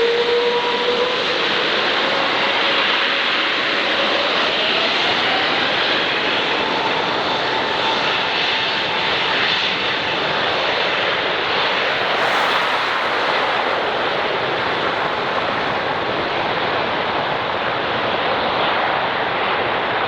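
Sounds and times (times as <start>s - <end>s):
jet engine roar: 0.0s - 20.0s
faint rising whine: 10.0s - 17.6s.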